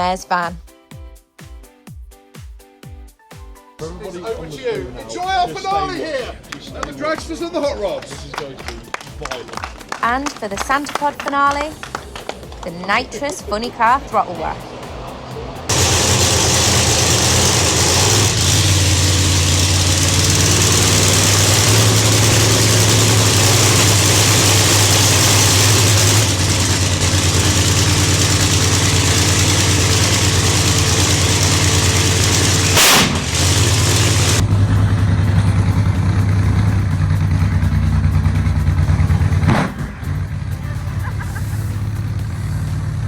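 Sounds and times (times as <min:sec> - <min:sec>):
race car engine revving: 0:14.0 - 0:43.0
sharp engine blast: 0:15.7 - 0:36.8.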